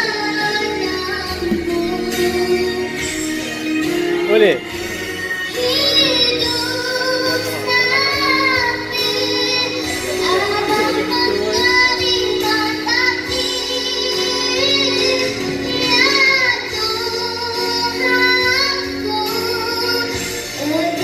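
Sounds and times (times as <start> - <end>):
child singing: 0.0 - 21.0
musical accompaniment: 0.0 - 21.0.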